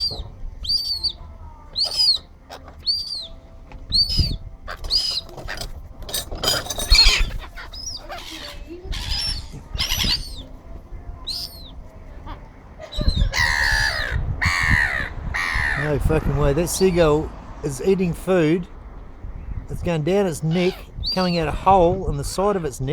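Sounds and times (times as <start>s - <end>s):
gulls calling: 0.0s - 22.9s
loud rustling: 1.7s - 12.2s.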